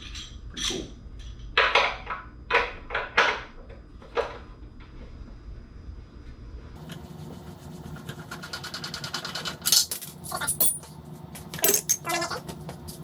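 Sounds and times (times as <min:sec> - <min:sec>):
metal tools clinking: 0:10.2 - 0:10.9, 0:11.6 - 0:12.1.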